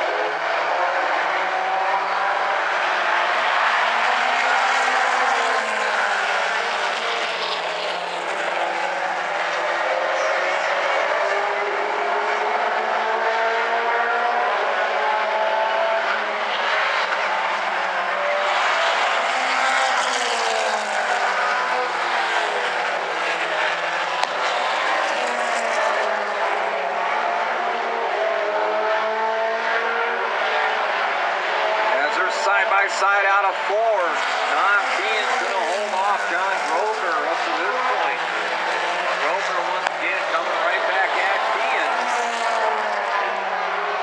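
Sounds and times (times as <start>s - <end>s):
race car engines passing: 0.0s - 44.0s.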